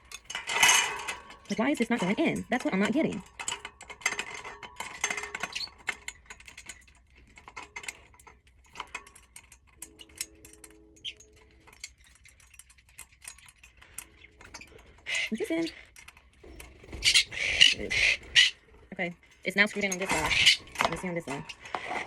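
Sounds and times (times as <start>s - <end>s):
small metal clicks and clinks: 0.0s - 17.0s.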